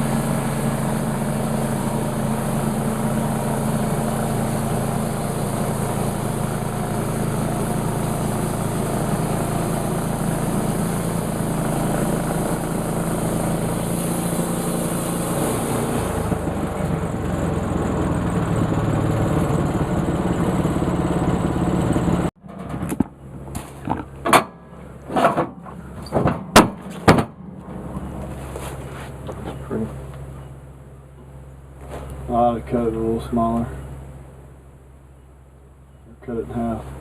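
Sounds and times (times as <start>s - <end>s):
sawmill engine running: 0.0s - 22.3s.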